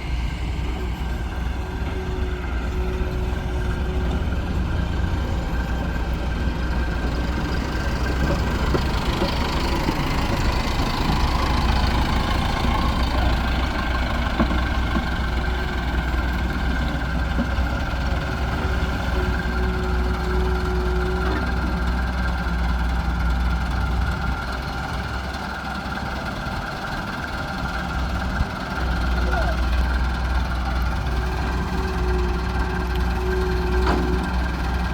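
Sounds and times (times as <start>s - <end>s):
steady whine: 0.0s - 20.3s
excavator working: 0.0s - 34.9s
tractor engines idling: 0.0s - 34.9s.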